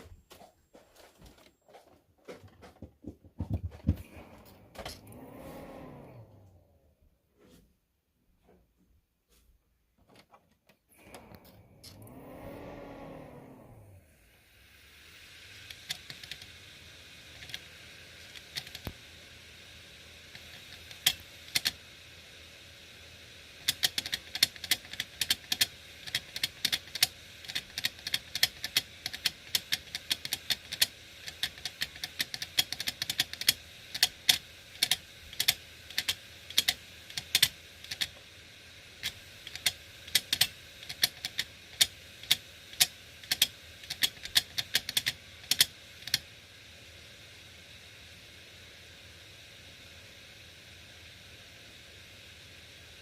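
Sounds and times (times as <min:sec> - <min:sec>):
faint hum and hiss: 0:00.0 - 0:53.0
hard disk drive clicking: 0:15.6 - 0:16.6, 0:17.2 - 0:19.1, 0:20.3 - 0:21.8, 0:23.6 - 0:38.3, 0:39.0 - 0:46.3.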